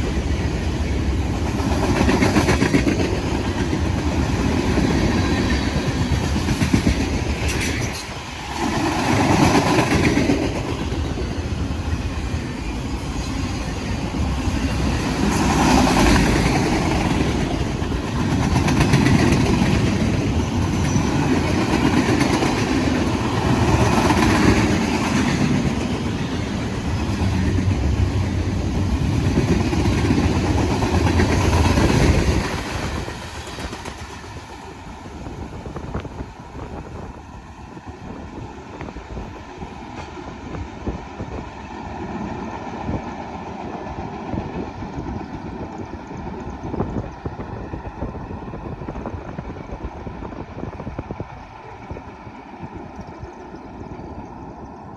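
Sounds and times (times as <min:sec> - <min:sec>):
train wheels clattering on rails: 0:00.0 - 0:54.9.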